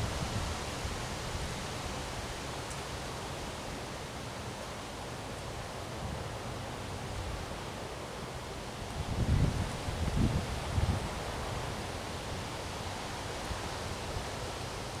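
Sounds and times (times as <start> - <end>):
wind rumble on microphone: 0.0 - 1.9, 8.8 - 12.5.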